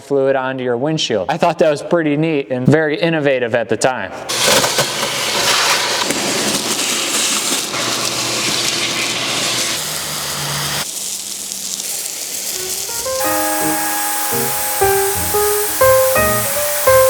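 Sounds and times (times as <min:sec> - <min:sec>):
background piano music: 0:12.6 - 0:17.0
loud rushing hiss: 0:12.6 - 0:17.0.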